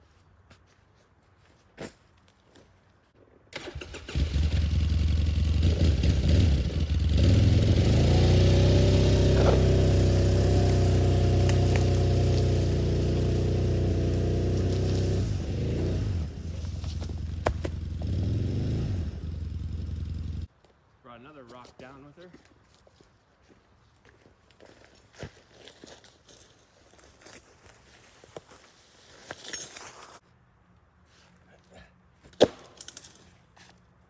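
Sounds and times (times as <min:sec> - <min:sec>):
quad engine revving: 0:03.6 - 0:16.6, 0:17.6 - 0:20.5.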